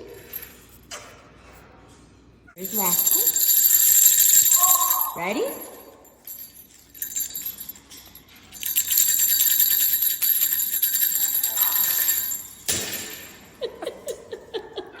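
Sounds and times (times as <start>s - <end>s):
small bells jingling: 2.6s - 14.2s.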